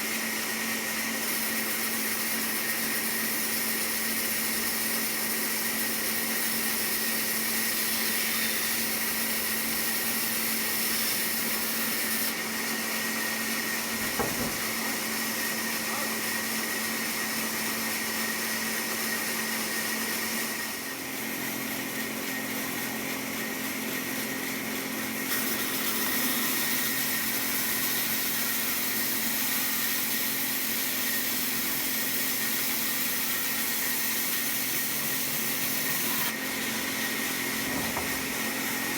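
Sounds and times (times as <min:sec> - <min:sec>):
power saw droning: 0:01.2 - 0:18.1, 0:25.1 - 0:38.9.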